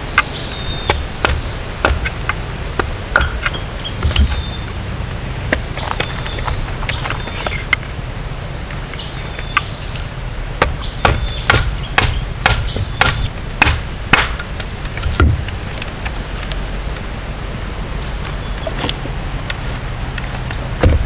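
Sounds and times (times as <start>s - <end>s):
blade chopping wood: 0.0s - 8.0s, 8.7s - 15.6s, 20.7s - 21.0s.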